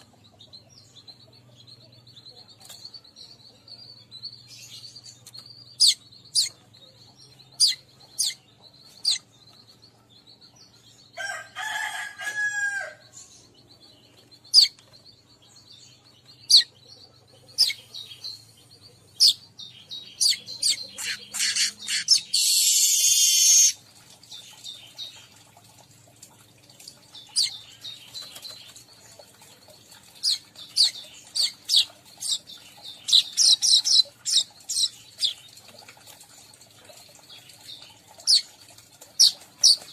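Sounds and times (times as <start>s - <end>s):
birds chirping and chattering: 0.0s - 39.9s
bird pitched call: 20.2s - 23.8s.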